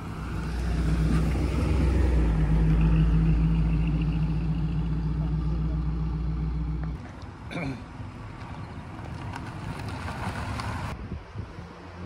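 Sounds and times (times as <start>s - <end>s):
car engine pulling away: 0.0s - 7.0s.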